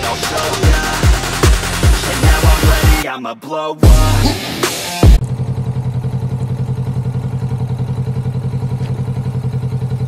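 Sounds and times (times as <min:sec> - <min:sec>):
motorcycle engine running at low revs: 0:05.0 - 0:10.0.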